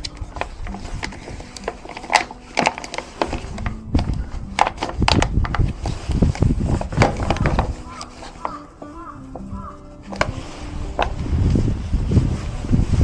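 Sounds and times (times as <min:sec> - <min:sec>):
firewood knocking and cracking: 0:00.0 - 0:11.2.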